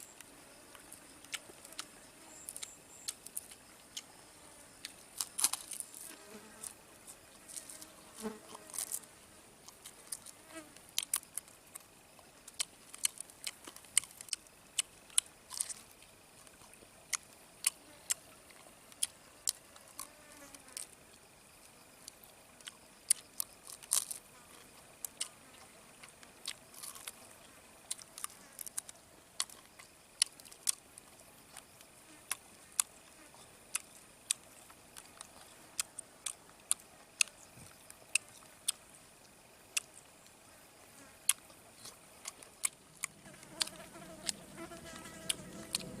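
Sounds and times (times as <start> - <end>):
high insect buzz: 0.0 - 12.6, 19.1 - 22.1, 43.0 - 46.0.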